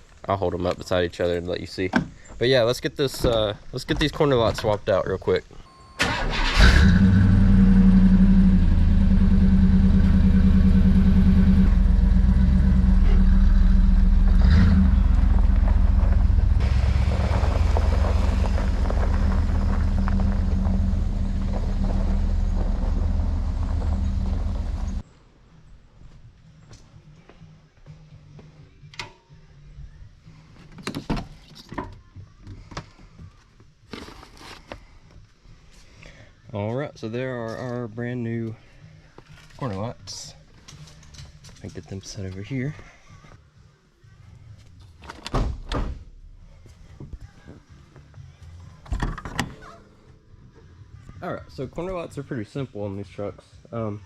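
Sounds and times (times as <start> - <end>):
pickup truck engine running: 6.7 - 25.0.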